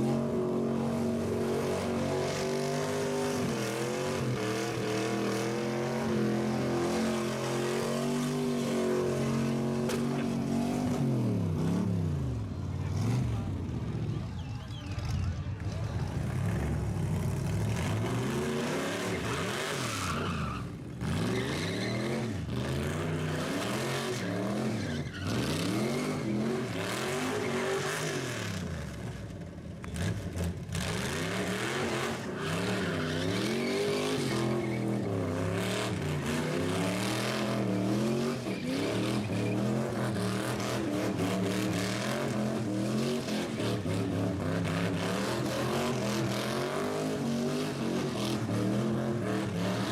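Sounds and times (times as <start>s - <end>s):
tires squealing on pavement: 17.7s - 28.6s, 30.8s - 49.9s
car engine revving hard: 30.0s - 49.9s.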